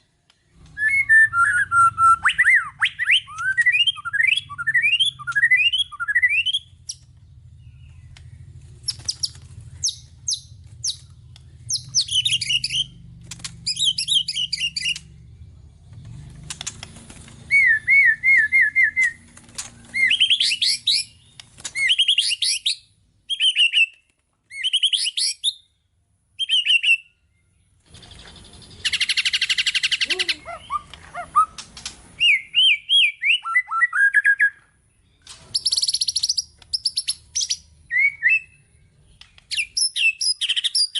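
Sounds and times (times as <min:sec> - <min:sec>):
bird singing whistled song: 0:00.4 - 0:13.0, 0:13.6 - 0:15.1, 0:17.5 - 0:19.2, 0:19.8 - 0:25.8, 0:26.4 - 0:40.9.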